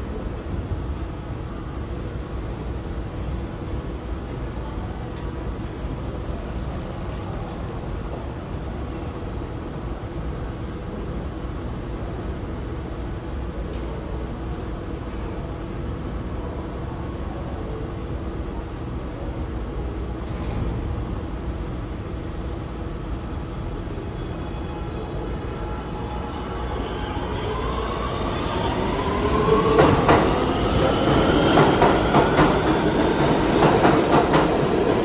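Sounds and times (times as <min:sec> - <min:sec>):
subway train rumbling: 0:00.0 - 0:35.0
train wheel squeal: 0:25.5 - 0:34.9.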